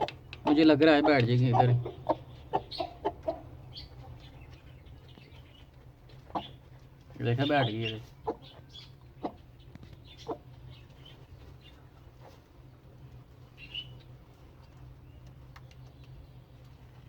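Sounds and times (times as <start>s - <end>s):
chickens clucking: 0.0s - 17.0s
faint low hum: 0.0s - 17.0s.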